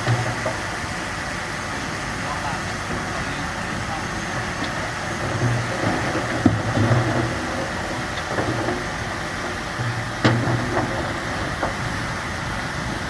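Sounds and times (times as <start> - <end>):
bulldozer engine running: 0.0 - 13.0
sharp knocks: 5.3 - 12.0.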